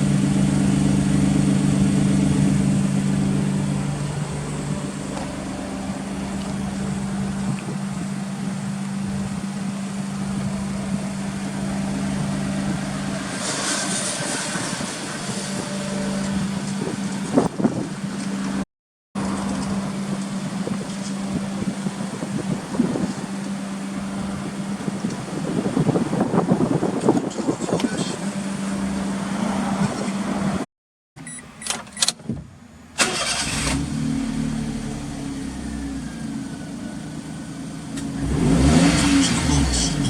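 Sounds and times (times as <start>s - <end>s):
car engine idling: 0.0s - 18.6s, 32.9s - 40.0s.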